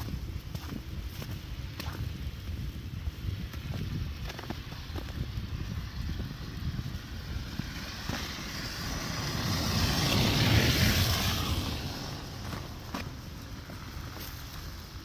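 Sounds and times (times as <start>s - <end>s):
car driving past: 7.4s - 13.2s.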